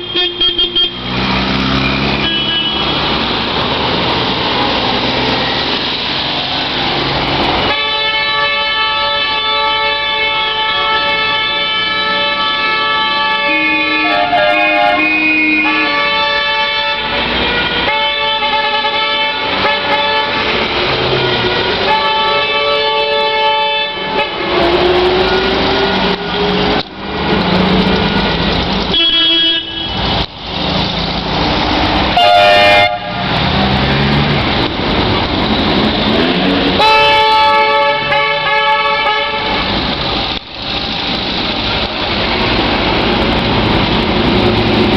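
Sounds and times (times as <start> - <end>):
vehicle horns blasting: 0.0 - 1.2, 1.8 - 3.2, 7.7 - 24.8, 28.9 - 30.1, 32.1 - 33.4, 36.1 - 39.8.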